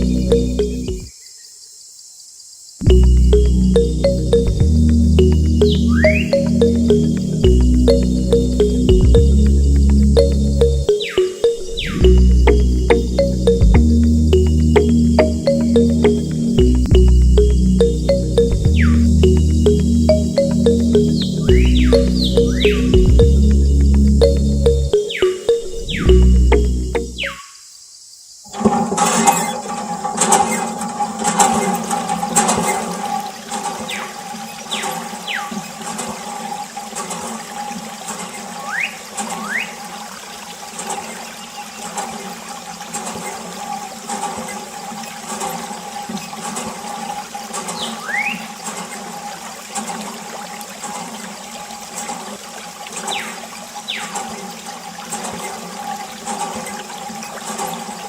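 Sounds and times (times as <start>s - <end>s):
pump motor humming: 28.5s - 58.0s
water gushing and splashing: 28.5s - 58.0s.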